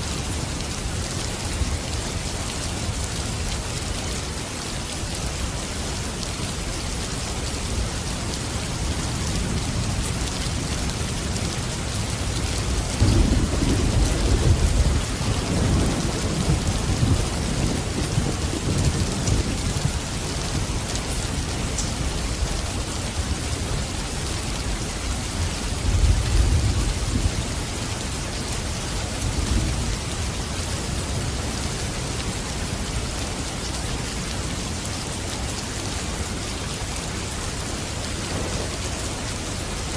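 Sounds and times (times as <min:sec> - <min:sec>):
heavy rain: 0:00.0 - 0:39.9
rolling thunder: 0:12.9 - 0:20.1, 0:37.8 - 0:39.8.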